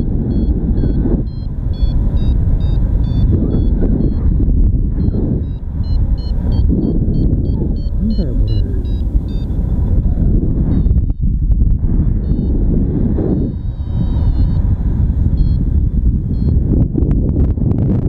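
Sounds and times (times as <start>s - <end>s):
variometer beeping: 0.0s - 16.9s
wind rushing across microphone: 0.0s - 18.0s.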